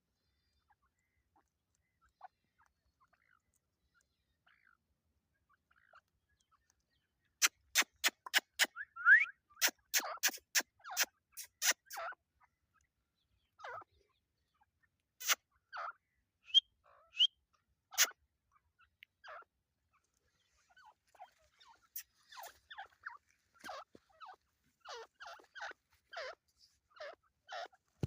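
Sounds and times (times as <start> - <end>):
partridge clicking calls: 7.4 - 12.1, 15.2 - 15.4.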